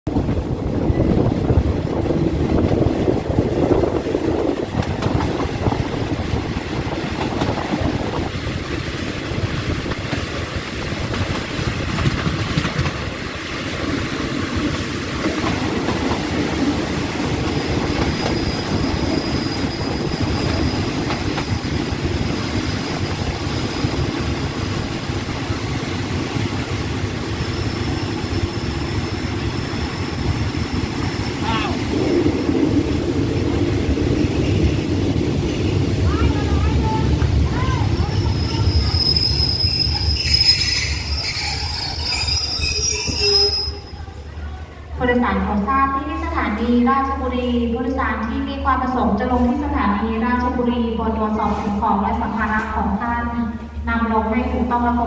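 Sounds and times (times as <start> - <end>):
train wheels clattering on rails: 1.0 - 43.2
thin high squeal: 38.0 - 44.0.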